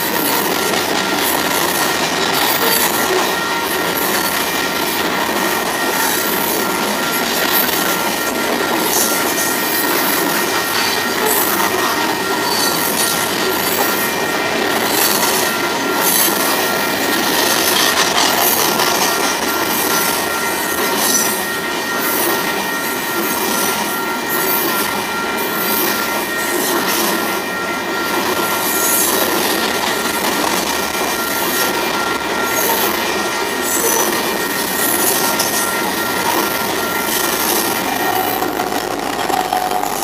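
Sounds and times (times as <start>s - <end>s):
freight train wheels on rail: 0.0s - 40.0s.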